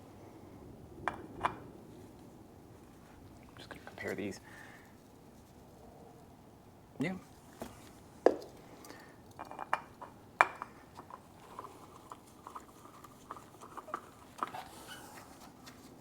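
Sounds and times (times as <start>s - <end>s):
oil filters clicking and clinking: 8.3s - 14.6s.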